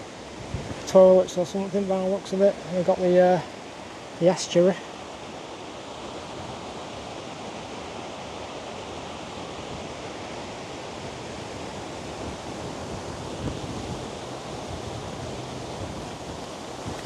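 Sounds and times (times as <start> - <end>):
strong wind rushing: 0.0 - 1.9, 5.9 - 17.0.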